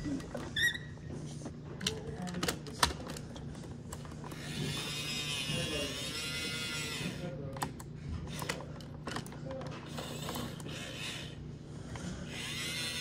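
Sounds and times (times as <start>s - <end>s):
small electric motor whine: 4.3s - 7.4s, 9.9s - 11.4s, 12.0s - 13.0s.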